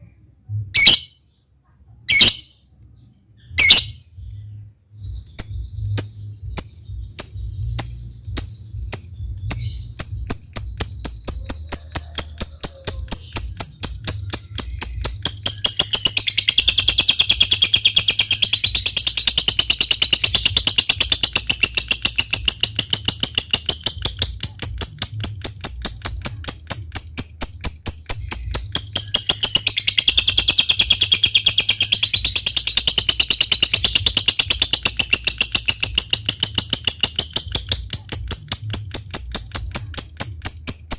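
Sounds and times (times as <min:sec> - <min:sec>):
lovebird calling: 0:03.4 - 0:04.4, 0:05.0 - 0:40.8.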